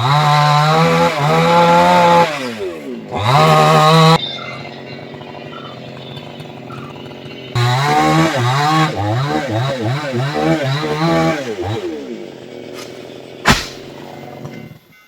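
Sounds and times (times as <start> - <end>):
chainsaw idling and revving: 0.0 - 14.9
sharp knock: 13.4 - 13.9.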